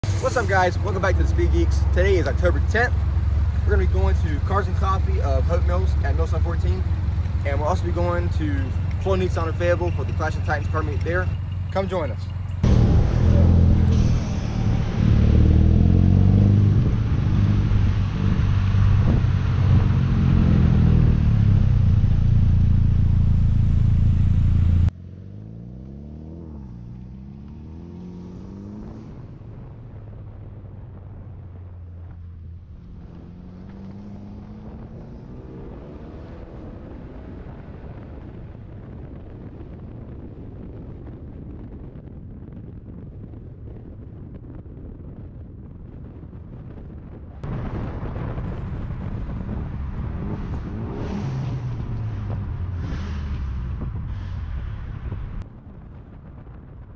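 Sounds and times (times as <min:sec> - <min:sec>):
loud engine with hiss: 0:00.0 - 0:11.3
cars accelerating: 0:00.0 - 0:29.6, 0:31.9 - 0:38.0, 0:48.4 - 0:55.4.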